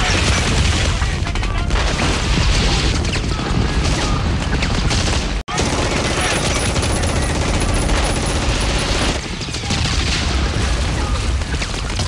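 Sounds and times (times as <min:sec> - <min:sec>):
booms and crash effects: 0:00.0 - 0:06.6.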